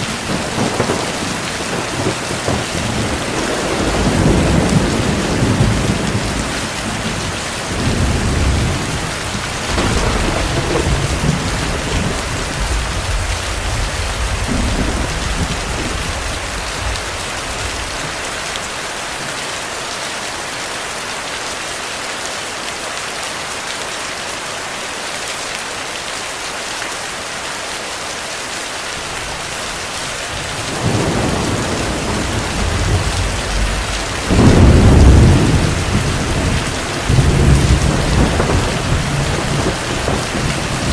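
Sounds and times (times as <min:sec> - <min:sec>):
rolling thunder: 0:00.0 - 0:18.2, 0:30.0 - 0:40.9
heavy rain falling: 0:00.0 - 0:40.9.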